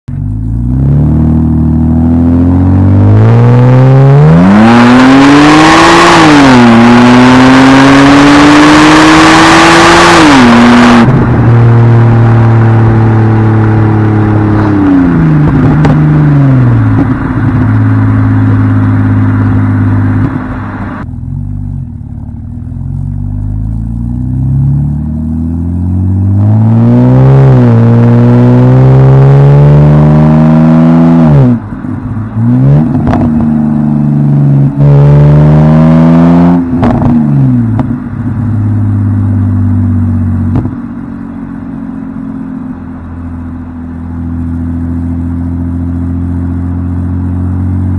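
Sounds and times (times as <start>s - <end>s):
car exhaust accelerating: 0.1s - 47.9s.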